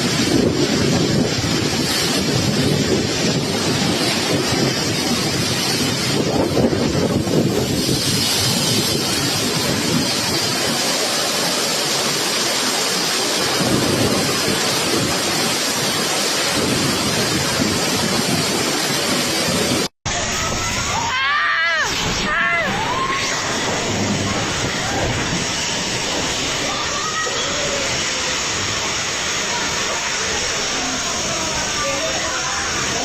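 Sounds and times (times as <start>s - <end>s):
heavy rain: 0.0s - 33.0s
wind: 0.0s - 33.0s
low rumble: 21.9s - 31.8s.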